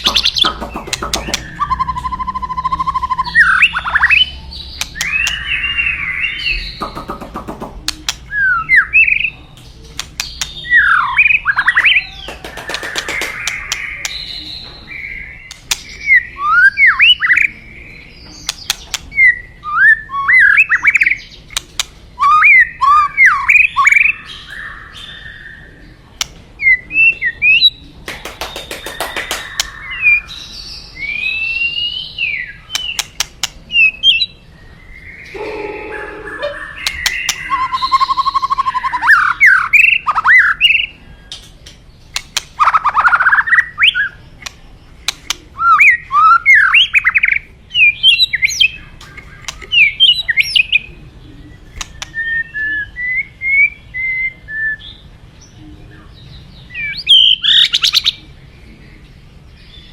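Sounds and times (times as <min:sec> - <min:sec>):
sharp bird clicks: 0:00.0 - 0:05.6, 0:06.5 - 0:14.4, 0:15.4 - 0:16.2, 0:18.4 - 0:19.3, 0:20.9 - 0:22.0, 0:26.2 - 0:26.4, 0:27.0 - 0:30.0, 0:32.7 - 0:34.2, 0:36.8 - 0:47.4, 0:48.4 - 0:50.7, 0:51.7 - 0:52.4
bird singing whistled phrases: 0:01.3 - 0:06.7, 0:35.1 - 0:40.9
harsh bird call: 0:10.7 - 0:17.4, 0:27.4 - 0:30.4, 0:35.0 - 0:41.0.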